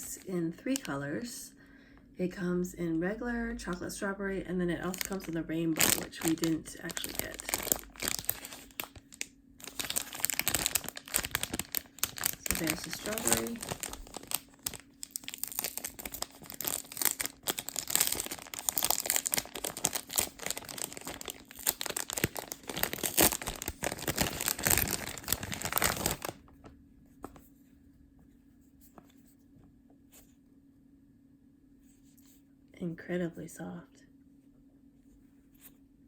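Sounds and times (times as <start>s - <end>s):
plastic packaging crinkling and tearing: 0.0s - 1.0s, 4.8s - 26.5s.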